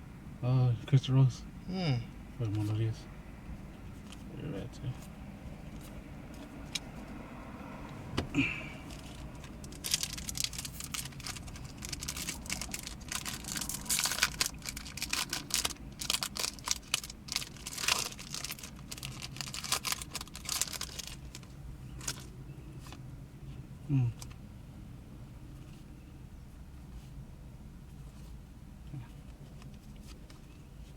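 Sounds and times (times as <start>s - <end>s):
foil wrapper crinkling and tearing: 8.9s - 22.3s.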